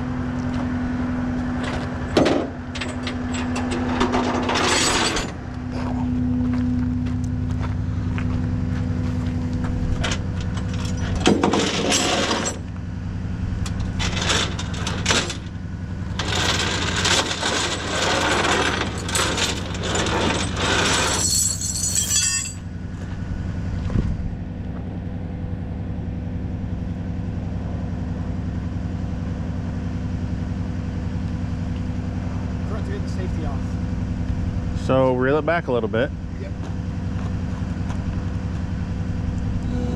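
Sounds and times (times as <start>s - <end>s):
truck engine idling: 0.0s - 39.9s
metallic clattering and knocking: 10.0s - 12.6s.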